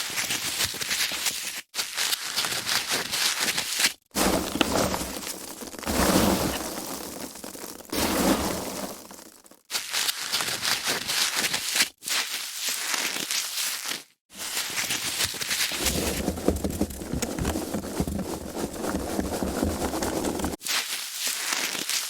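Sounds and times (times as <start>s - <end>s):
foam packaging crackling: 4.2s - 9.6s, 14.5s - 20.9s.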